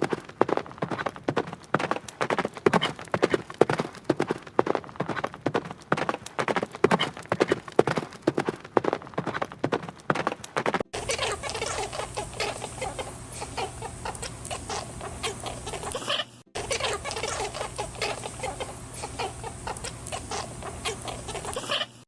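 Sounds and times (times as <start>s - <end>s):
hens clucking: 11.0s - 22.0s
steady low hum: 11.0s - 22.0s.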